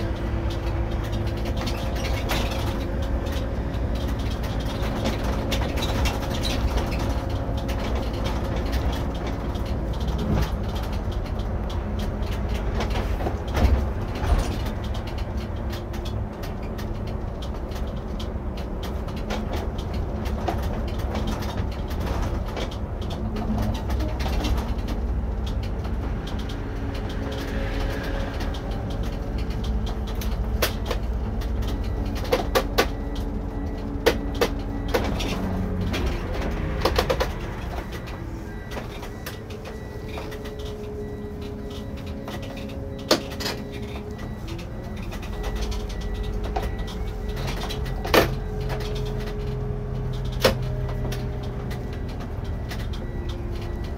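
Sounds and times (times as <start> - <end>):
coach engine drone: 0.0 - 53.9
sharp rattles and clicks: 0.0 - 53.9.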